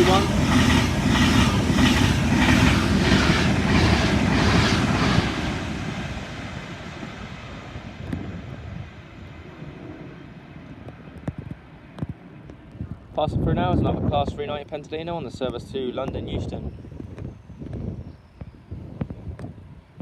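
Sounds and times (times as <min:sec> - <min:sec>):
electric train passing: 0:00.0 - 0:12.6.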